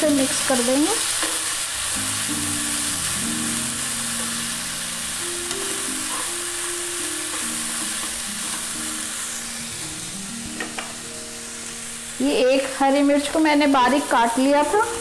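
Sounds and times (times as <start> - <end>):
seeds sizzling in oil: 0.0 - 15.0
slow background music: 1.8 - 15.0.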